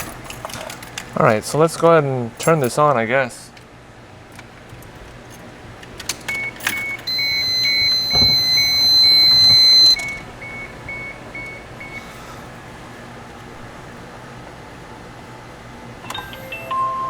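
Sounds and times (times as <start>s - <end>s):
keys jangling: 0.0s - 1.2s
car warning chime beeping: 6.4s - 12.1s.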